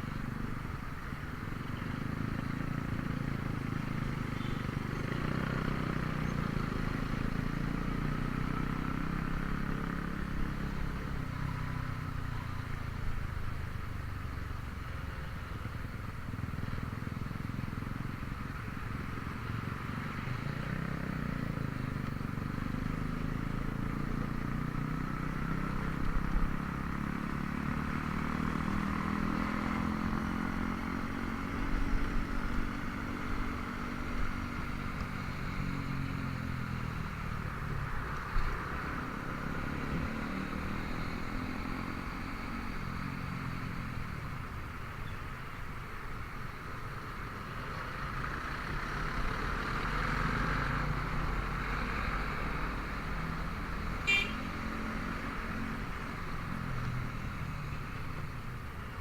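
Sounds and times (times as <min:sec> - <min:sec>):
wind and road noise: 0:00.0 - 0:59.0
scooter engine running: 0:54.0 - 0:54.5.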